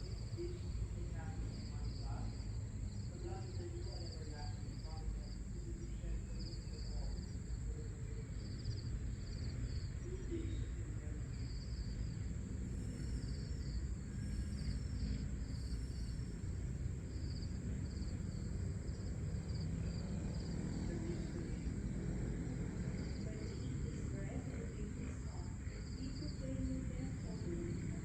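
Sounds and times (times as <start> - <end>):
crickets chirping: 0.0 - 28.0
low background rumble: 0.0 - 28.0
high-pitched insect drone: 11.4 - 21.3.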